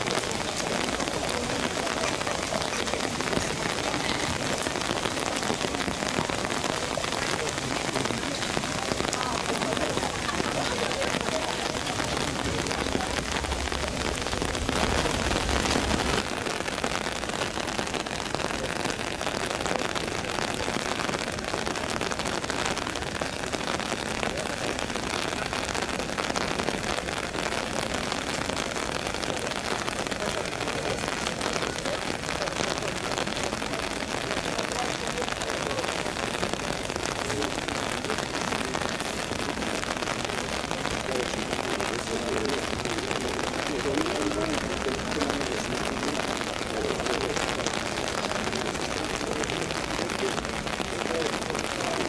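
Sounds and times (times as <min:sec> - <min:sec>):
heavy rain falling: 0:00.0 - 0:52.0
deep rushing noise: 0:11.8 - 0:16.2.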